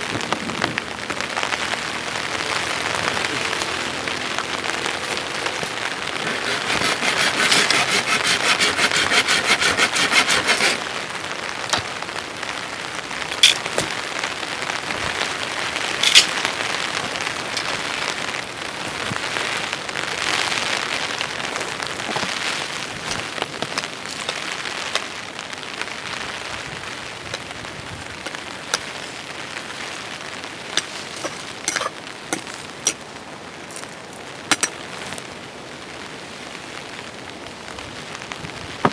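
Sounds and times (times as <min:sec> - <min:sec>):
steady rain: 0:00.0 - 0:07.4, 0:08.0 - 0:38.9
rapid rhythmic scraping: 0:01.2 - 0:12.4, 0:13.0 - 0:25.2.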